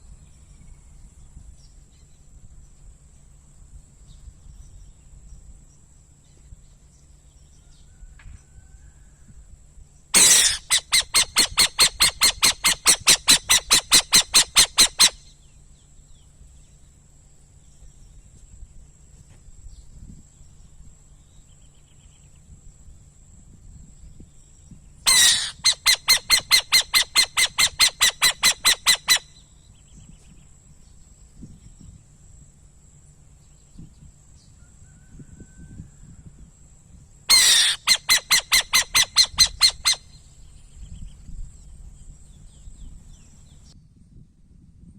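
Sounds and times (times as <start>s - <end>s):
insect drone: 0.0s - 44.0s
bird harsh repeated calls: 10.2s - 15.3s, 25.1s - 29.4s, 37.3s - 40.2s.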